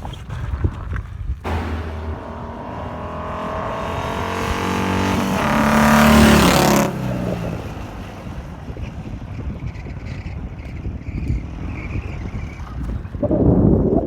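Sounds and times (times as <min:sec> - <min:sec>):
motorcycle engine revving: 0:01.5 - 0:08.2.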